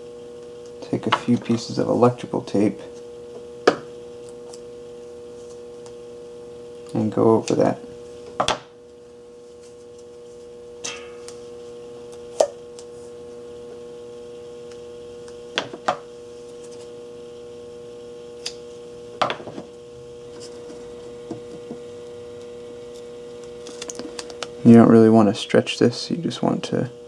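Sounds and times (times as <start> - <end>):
steady low hum: 0.0 - 27.0
tape crackling and clicking: 20.4 - 24.6.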